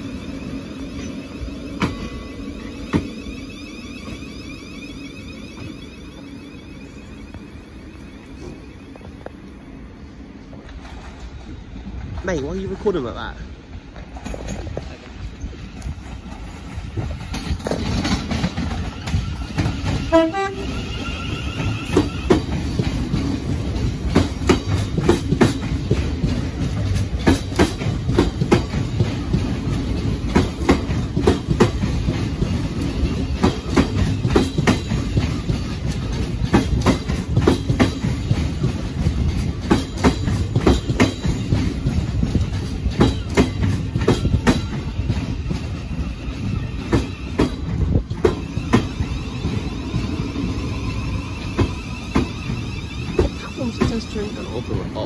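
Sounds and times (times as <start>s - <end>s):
train low rumble: 0.0s - 55.0s
train horn toot: 20.0s - 22.5s.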